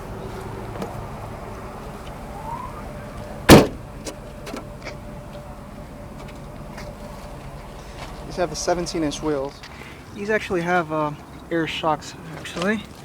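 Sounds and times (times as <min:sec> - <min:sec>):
steady low hum: 0:00.0 - 0:10.0
liftgate slamming shut: 0:03.4 - 0:04.7.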